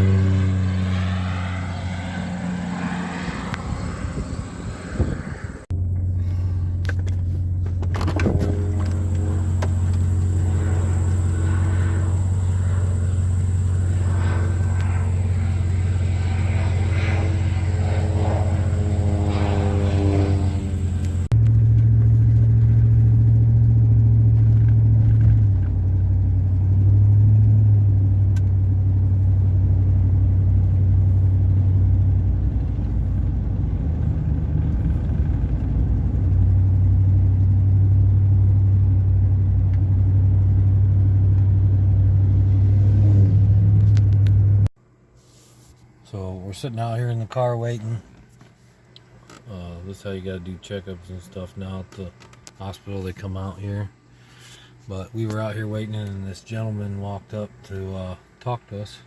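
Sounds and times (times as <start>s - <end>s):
heavy low rumble: 0.0s - 44.7s
propeller plane engine droning: 0.0s - 59.0s.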